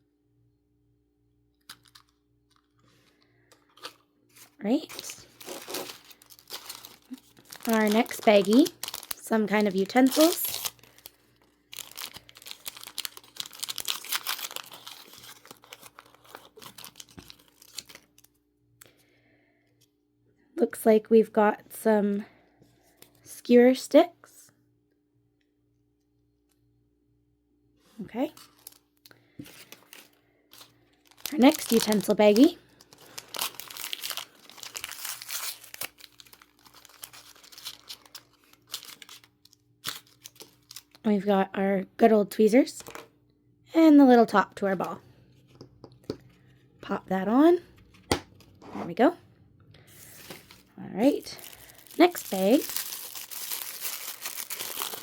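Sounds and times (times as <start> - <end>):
plastic bag crinkling and tearing: 1.7 - 18.3, 28.4 - 41.0, 50.0 - 55.0.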